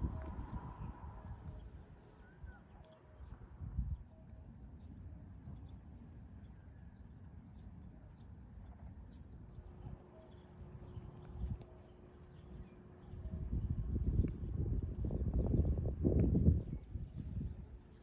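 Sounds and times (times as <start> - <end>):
low rumbling noise: 0.0 - 2.0
faint steady hum: 0.0 - 18.0.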